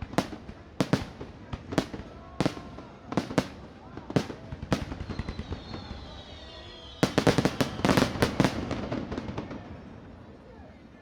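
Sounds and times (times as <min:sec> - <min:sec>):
fireworks bangs and crackling: 0:00.0 - 0:10.6
faint falling whistle: 0:04.8 - 0:08.7.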